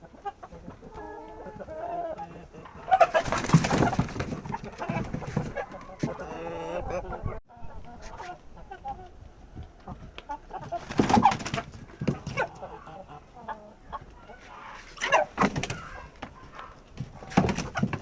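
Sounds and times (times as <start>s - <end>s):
cockerels clucking: 0.0s - 18.0s.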